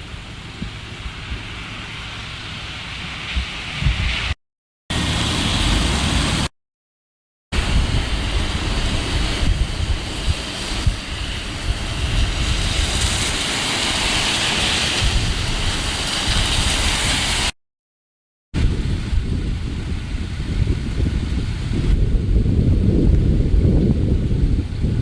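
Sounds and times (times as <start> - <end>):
wind gusting against microphone: 0.0 - 6.5, 7.5 - 17.5, 18.6 - 25.0
steady rushing hiss: 7.6 - 17.5.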